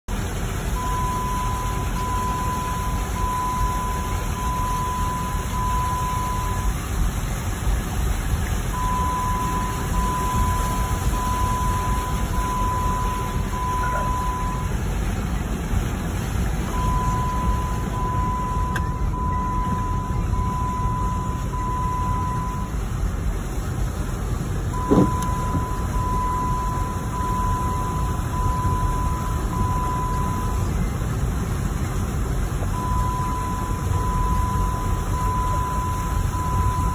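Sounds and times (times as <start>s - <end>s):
electronic warning beeps: 0.8s - 6.8s, 8.8s - 14.8s, 16.7s - 22.8s, 24.8s - 30.7s, 32.8s - 36.9s.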